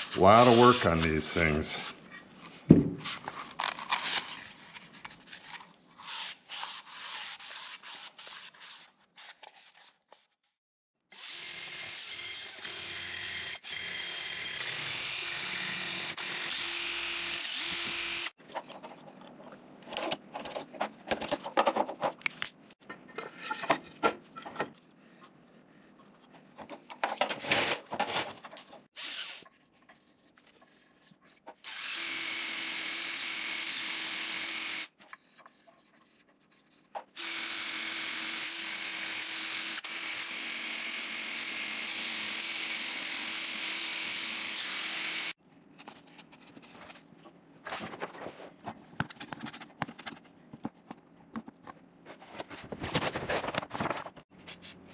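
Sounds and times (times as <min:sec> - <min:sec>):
power drill running: 0:11.1 - 0:18.3, 0:29.0 - 0:29.4, 0:31.6 - 0:34.9, 0:37.2 - 0:45.4.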